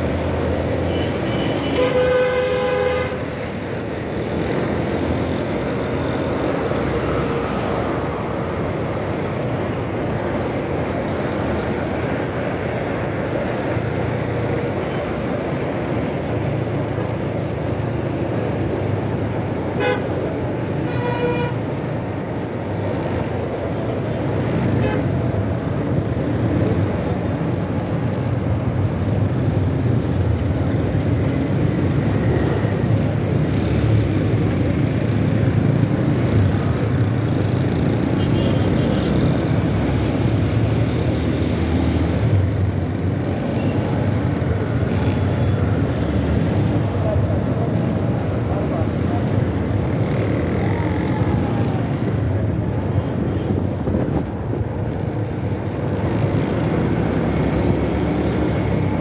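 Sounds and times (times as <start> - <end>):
road and wind noise: 0.0 - 59.0
vehicle horn tooting: 0.9 - 3.2, 19.8 - 20.1, 20.8 - 21.6.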